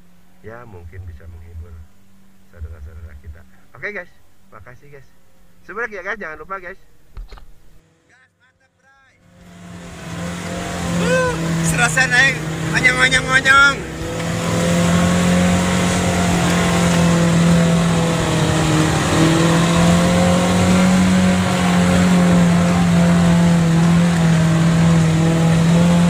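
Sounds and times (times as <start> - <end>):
off-road vehicle engine running: 0.0 - 8.0, 9.2 - 26.0.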